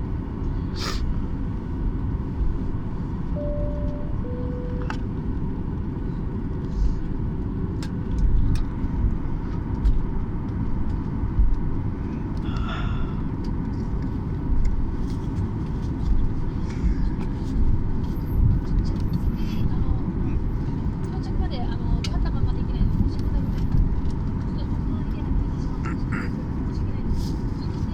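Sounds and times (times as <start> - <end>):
two-note cabin chime: 3.4 - 5.0.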